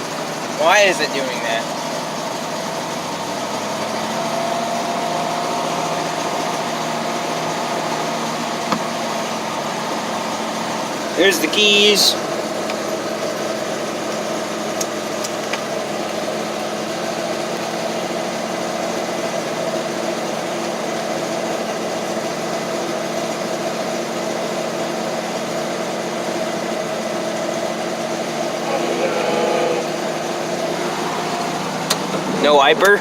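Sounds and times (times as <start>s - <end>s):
truck engine idling: 0.0s - 33.0s.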